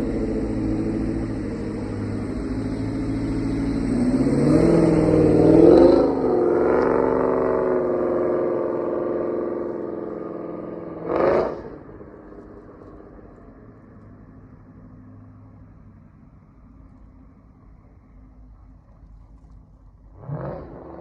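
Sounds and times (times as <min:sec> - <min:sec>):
engine exhaust revving: 0:00.0 - 0:12.2, 0:20.1 - 0:21.0.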